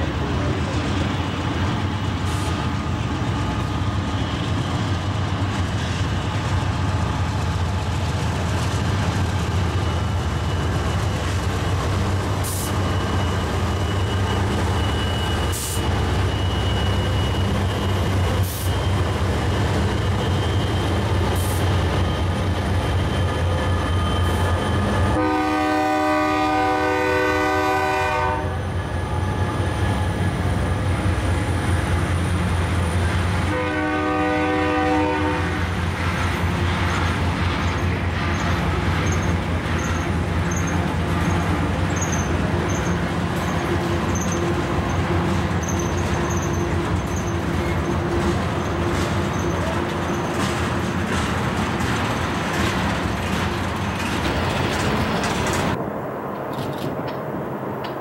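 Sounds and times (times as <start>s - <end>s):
diesel locomotive drone: 0.0s - 58.0s
locomotive horn: 25.1s - 28.6s, 33.4s - 35.8s.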